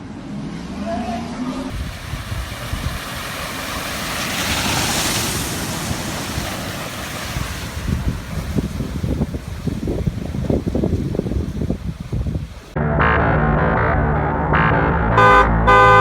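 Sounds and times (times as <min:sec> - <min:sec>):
wind rushing over microphone: 0:00.0 - 0:12.8.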